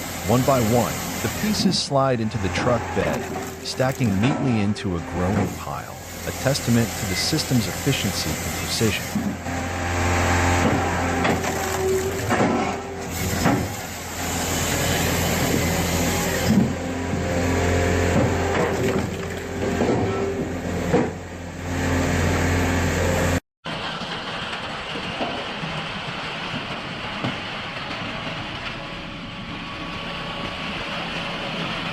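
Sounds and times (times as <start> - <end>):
quieter machine sound: 0.0 - 18.8
log splitter engine hum: 0.0 - 31.9.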